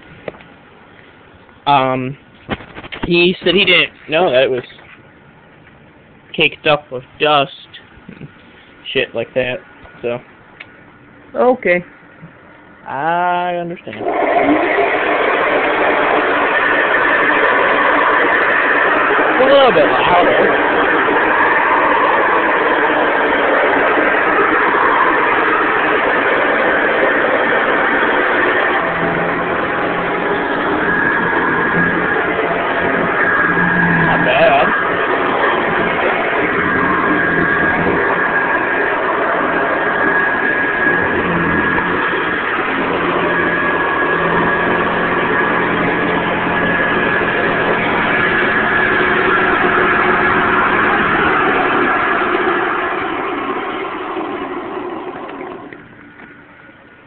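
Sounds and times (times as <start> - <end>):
vacuum cleaner running: 13.9 - 56.4.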